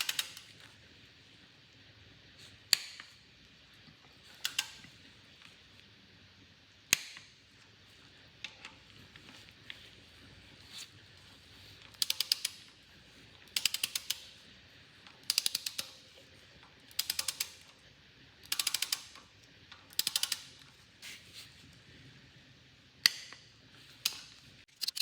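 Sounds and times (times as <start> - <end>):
ratchet wrench clicking: 0.0 - 0.5, 4.4 - 4.8, 11.9 - 12.7, 13.5 - 14.3, 15.2 - 16.0, 16.9 - 17.7, 18.4 - 19.2, 19.9 - 20.6, 24.0 - 25.0.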